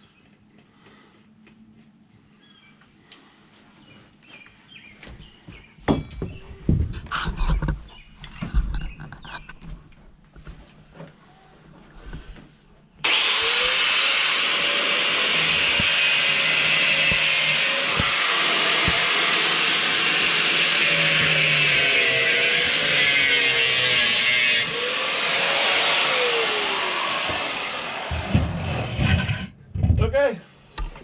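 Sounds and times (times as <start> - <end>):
electric grinder grinding metal: 13.0 - 29.5.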